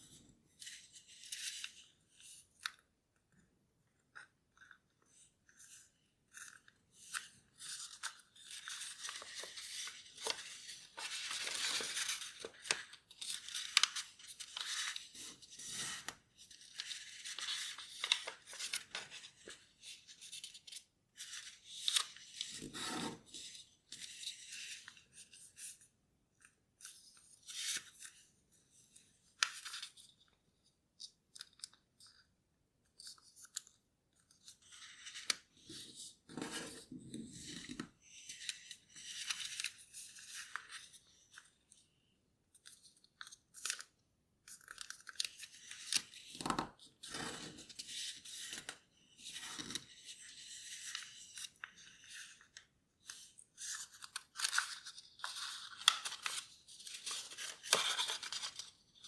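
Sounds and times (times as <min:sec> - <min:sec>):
paper rustling and crinkling: 0:04.6 - 0:25.8, 0:42.6 - 0:59.0.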